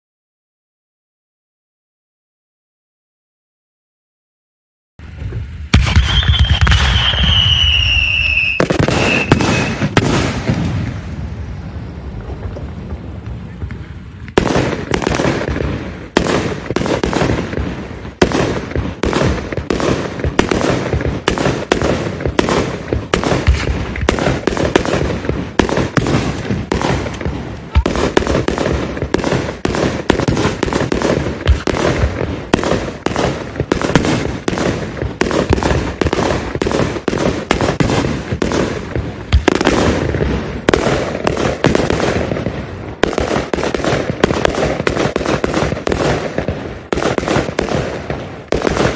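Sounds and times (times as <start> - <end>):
continuous rumble: 5.0 - 41.6
fireworks bursting: 5.0 - 48.9.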